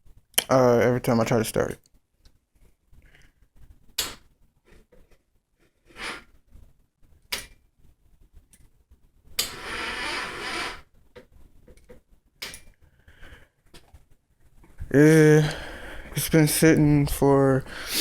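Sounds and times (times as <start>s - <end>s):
rasping starter noise: 9.4s - 10.8s.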